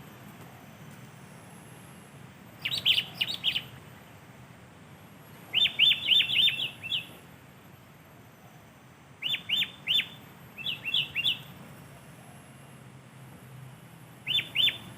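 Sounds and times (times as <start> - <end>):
bulbul chirping song: 2.6 - 4.1, 5.4 - 7.2, 9.2 - 11.6, 14.2 - 14.9.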